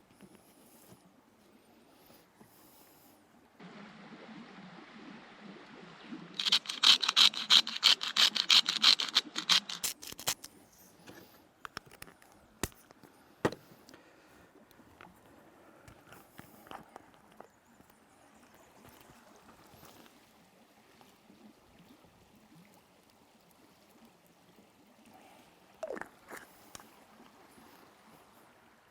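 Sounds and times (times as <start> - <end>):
fast sharp knocks on a board: 13.4 - 13.6.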